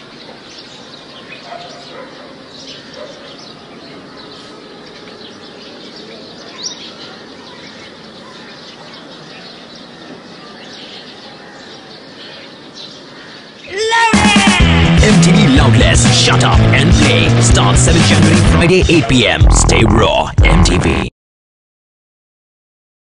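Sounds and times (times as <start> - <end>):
small birds chirping: 0.0 - 13.9.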